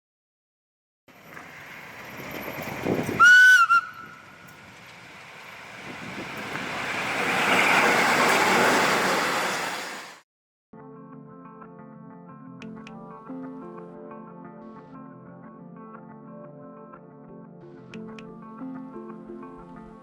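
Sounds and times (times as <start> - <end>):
train passing: 1.1 - 10.2.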